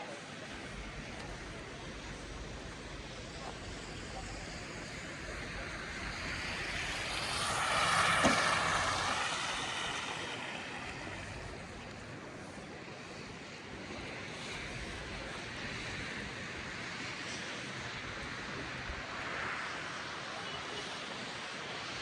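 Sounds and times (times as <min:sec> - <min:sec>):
vehicle passing by: 0:00.5 - 0:12.6.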